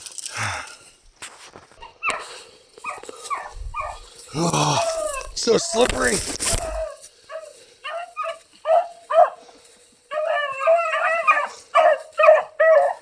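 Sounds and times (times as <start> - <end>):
dog yipping and crying: 10.1 - 13.0.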